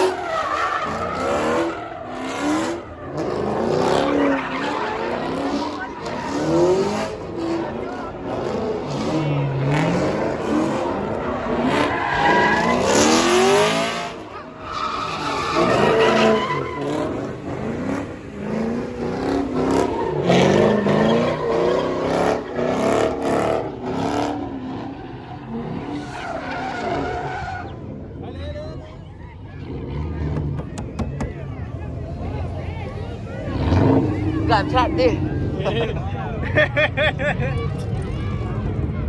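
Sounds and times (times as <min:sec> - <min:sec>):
tire squeal and skidding: 0:00.0 - 0:28.3, 0:31.8 - 0:35.6
car engine revving hard: 0:00.8 - 0:14.3, 0:14.9 - 0:27.4, 0:31.9 - 0:35.6.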